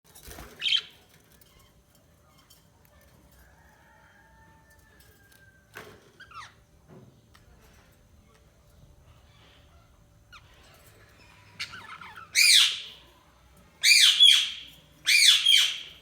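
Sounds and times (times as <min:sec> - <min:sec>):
budgerigar chirps: 0:11.7 - 0:12.9
budgerigar whistling: 0:12.3 - 0:12.9, 0:13.8 - 0:15.9.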